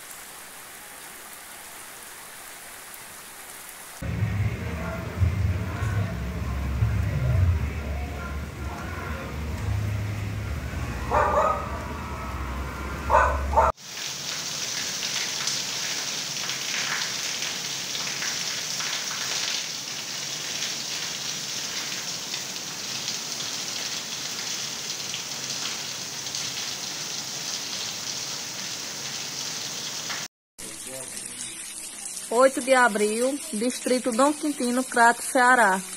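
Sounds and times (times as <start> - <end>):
heavy rain falling: 0.0 - 31.3
low hum: 4.0 - 13.7
dog barking: 11.0 - 12.0, 13.0 - 13.8.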